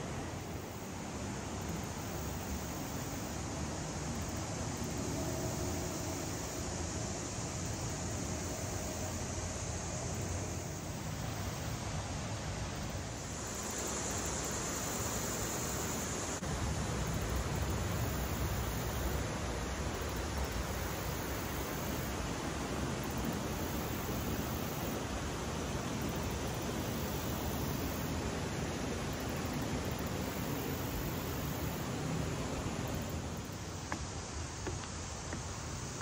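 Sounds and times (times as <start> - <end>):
creek water rushing over rocks: 9.2 - 36.0.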